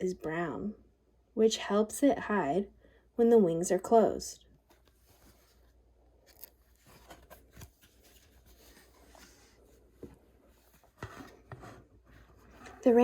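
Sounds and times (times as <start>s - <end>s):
page turning: 4.7s - 9.8s
book rustling and tapping: 6.3s - 12.9s.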